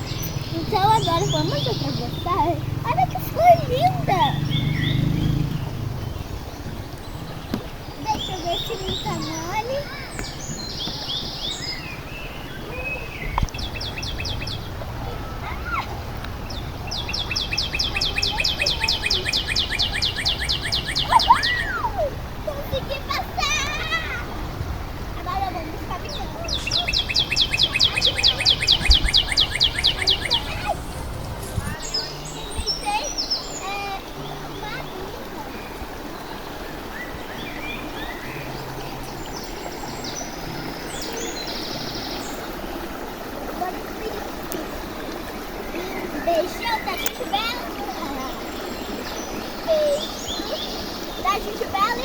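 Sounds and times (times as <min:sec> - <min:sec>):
bird singing fast trill: 0:00.0 - 0:09.7, 0:16.5 - 0:21.8, 0:26.2 - 0:34.3
birds calling: 0:00.0 - 0:52.0
stream water running: 0:00.0 - 0:52.0.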